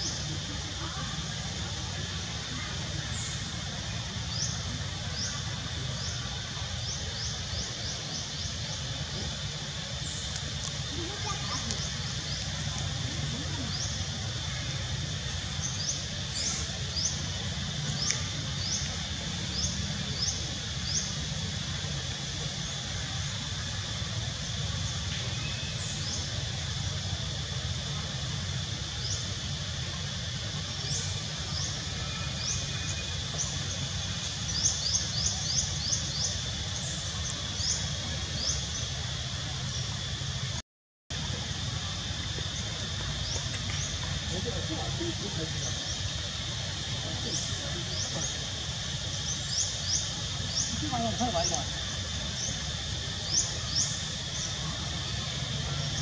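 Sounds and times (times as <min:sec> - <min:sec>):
small birds chirping: 0:02.4 - 0:23.4, 0:42.4 - 0:56.0.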